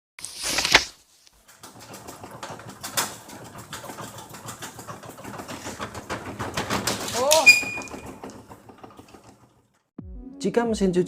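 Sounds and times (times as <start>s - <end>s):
washing machine knocking and rattling: 1.4s - 9.9s
washing machine rushing: 1.4s - 9.9s.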